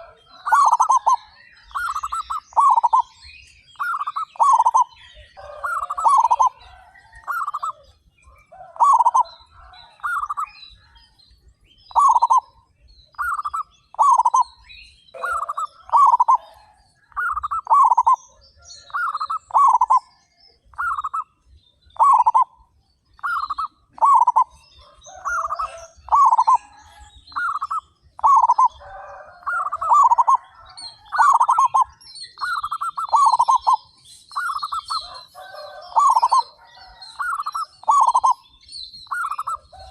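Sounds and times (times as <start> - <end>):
doves cooing: 0.0 - 3.2, 3.8 - 11.0, 11.9 - 21.3, 22.0 - 22.6, 23.2 - 39.9
small birds chirping: 0.0 - 39.9.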